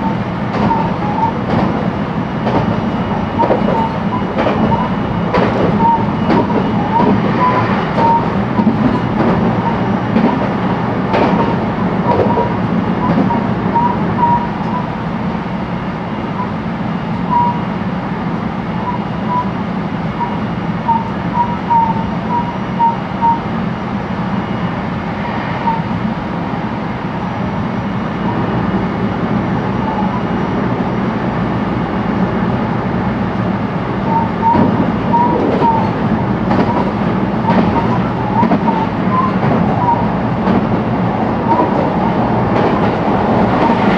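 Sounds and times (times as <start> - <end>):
rail-joint clicks: 0.0 - 14.9, 34.0 - 43.9
train wheels rumbling on rail: 0.0 - 43.9.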